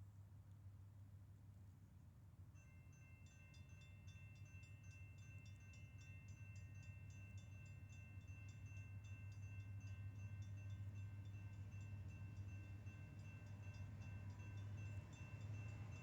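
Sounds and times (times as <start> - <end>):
distant crossing bell pinging: 2.6 - 16.0.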